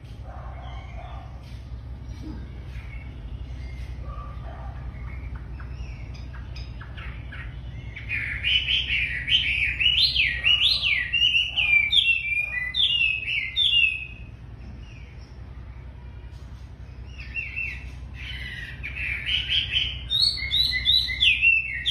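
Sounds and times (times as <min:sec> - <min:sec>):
soft bird chirps: 0:00.0 - 0:21.9
steady low hum: 0:00.0 - 0:21.9
songbird singing whistled notes: 0:04.8 - 0:15.4, 0:16.9 - 0:21.9.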